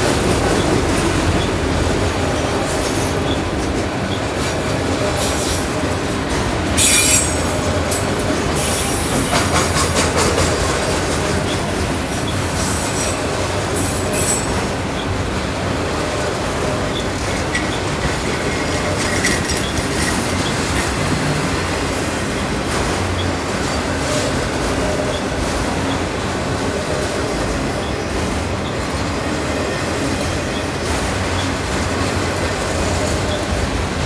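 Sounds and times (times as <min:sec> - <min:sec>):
steel wheels running on rails: 0:00.0 - 0:34.0.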